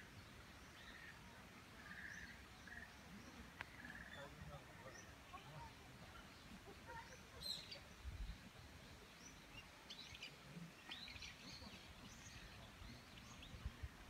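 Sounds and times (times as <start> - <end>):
faint songbird chirps: 0.0 - 14.0.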